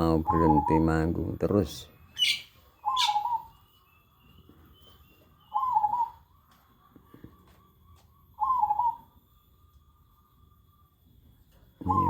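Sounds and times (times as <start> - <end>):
dove cooing: 2.2 - 3.5, 5.5 - 6.3, 8.4 - 9.2, 11.8 - 12.0.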